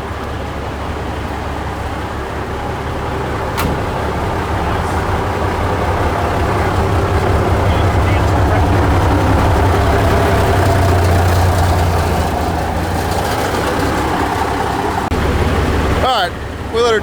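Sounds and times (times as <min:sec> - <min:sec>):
diesel engine idling: 0:00.0 - 0:17.0
sharp click: 0:03.6 - 0:04.2.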